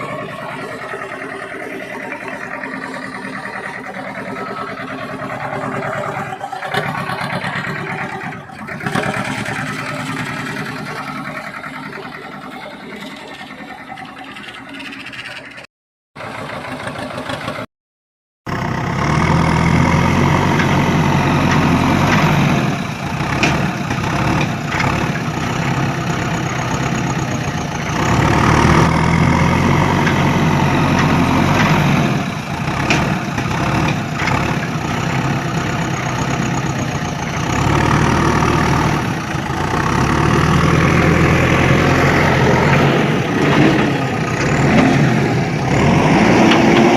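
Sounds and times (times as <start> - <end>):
vehicle engine running: 0.0 - 17.7, 18.5 - 46.9.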